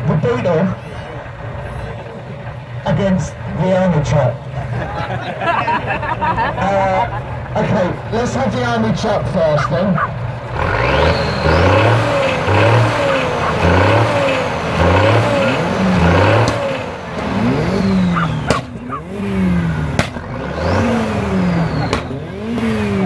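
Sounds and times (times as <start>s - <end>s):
truck engine revving: 0.0s - 23.0s
sharp cracks: 12.3s - 19.0s, 19.9s - 20.3s.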